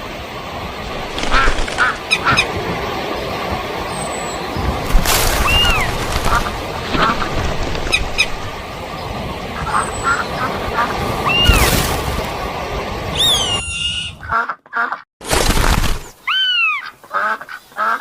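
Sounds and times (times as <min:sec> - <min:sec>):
rough outdoor noise: 0:00.0 - 0:13.4
harsh quacking calls: 0:05.4 - 0:07.4
high whistled bird calls: 0:11.2 - 0:11.7, 0:13.1 - 0:14.2.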